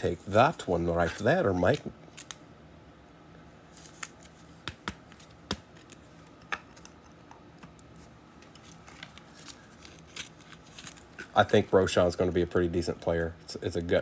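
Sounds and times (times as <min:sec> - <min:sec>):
cards in plastic sleeves clicking: 0:01.7 - 0:02.4, 0:03.8 - 0:06.9.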